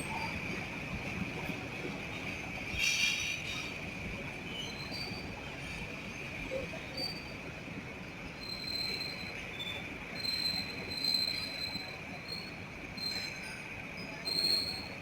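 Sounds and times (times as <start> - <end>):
metallic wheel squeal: 8.4 - 13.4, 14.1 - 15.0.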